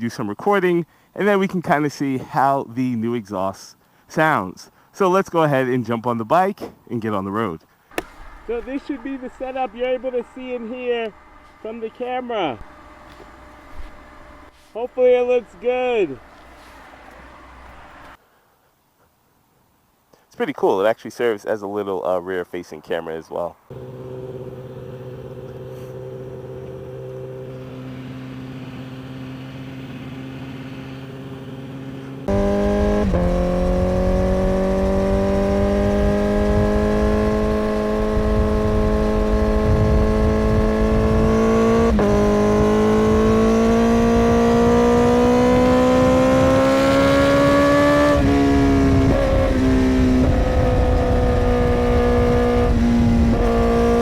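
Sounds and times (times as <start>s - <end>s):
motorcycle engine revving: 7.9s - 18.2s, 23.7s - 54.0s.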